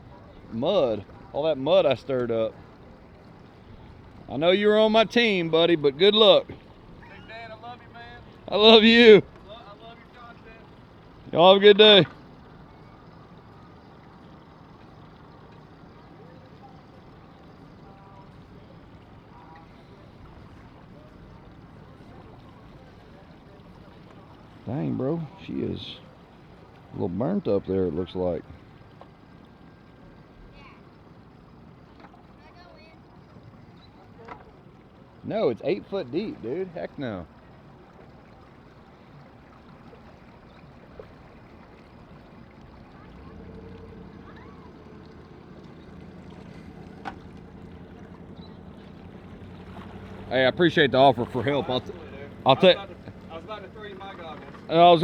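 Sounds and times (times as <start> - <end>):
boat engines rumbling: 0.0 - 55.0
faint distant voices: 0.0 - 55.0.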